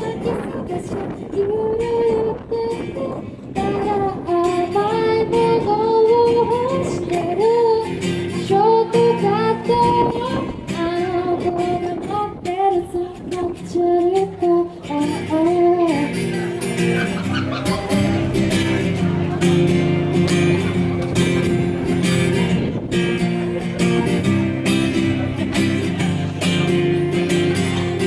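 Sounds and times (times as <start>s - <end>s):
woman singing: 0.0s - 16.8s
acoustic guitar: 0.0s - 28.0s.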